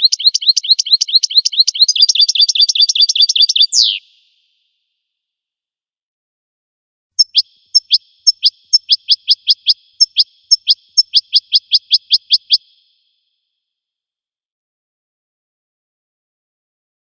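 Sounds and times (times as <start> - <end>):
goldfinch calling: 0.0 - 4.1, 7.2 - 12.7.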